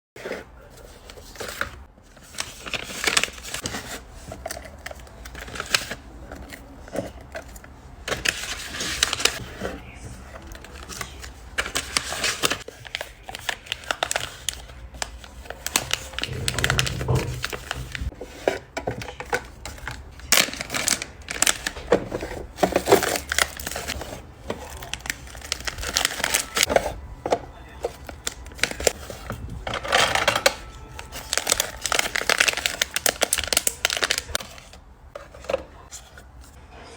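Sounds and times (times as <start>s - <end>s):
plastic packaging crinkling: 10.2s - 18.1s, 19.7s - 27.0s, 27.6s - 36.0s.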